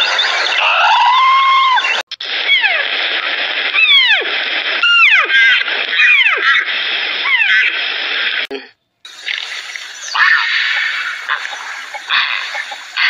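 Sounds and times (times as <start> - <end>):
steady background hiss: 9.1 - 13.0
deer calling: 10.1 - 13.0.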